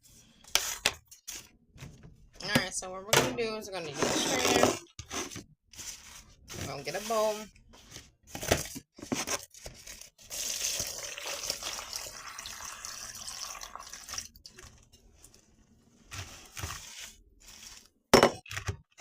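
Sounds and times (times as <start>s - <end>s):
water pouring through a strainer: 10.2s - 14.8s.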